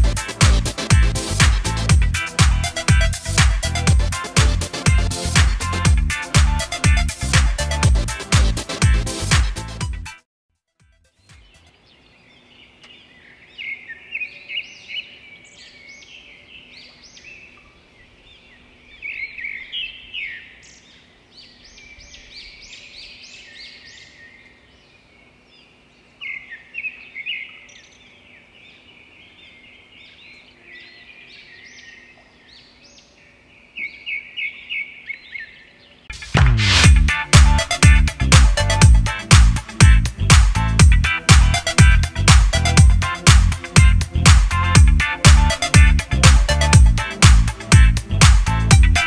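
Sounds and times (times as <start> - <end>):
wild birds chirping: 11.2 - 36.1.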